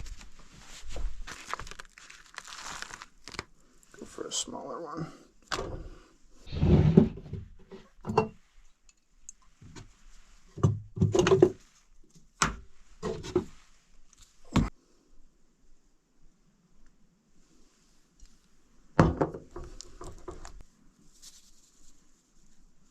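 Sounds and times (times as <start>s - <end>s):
cooking gear knocking and clunking: 10.6s - 11.6s.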